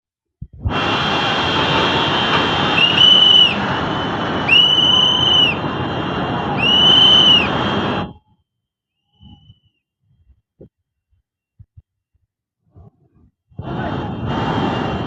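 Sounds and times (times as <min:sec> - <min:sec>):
whistle blasts: 0:01.8 - 0:05.7, 0:06.6 - 0:09.8.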